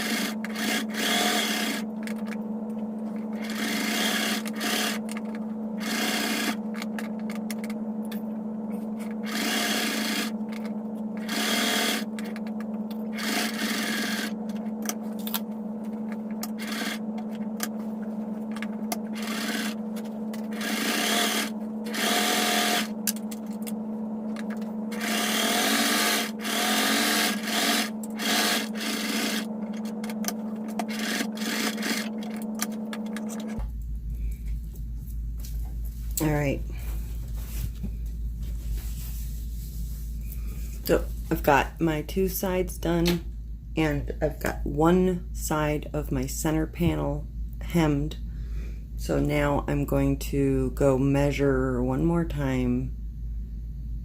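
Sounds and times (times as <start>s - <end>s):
sewing machine stitching: 0.0s - 2.4s, 3.2s - 7.7s, 9.2s - 14.6s, 16.4s - 17.4s, 18.5s - 23.3s, 24.9s - 33.6s
steady low hum: 0.0s - 54.0s
cloth rubbing and sliding: 38.4s - 40.2s.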